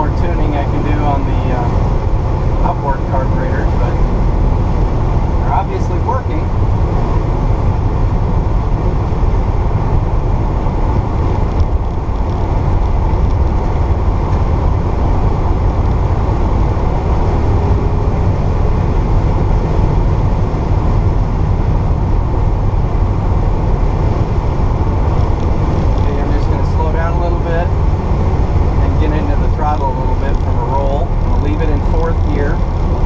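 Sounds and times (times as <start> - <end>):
car engine cruising: 0.0 - 33.0
road noise: 0.0 - 33.0.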